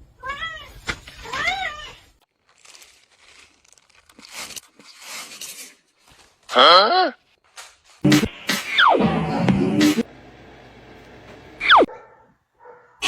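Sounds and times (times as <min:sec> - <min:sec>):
dry rustling and crinkling: 0:02.3 - 0:06.6.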